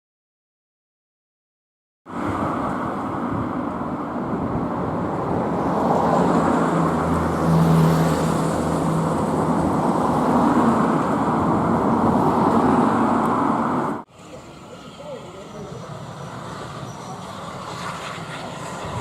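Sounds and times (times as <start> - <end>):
train wheels on rails: 15.0 - 19.0.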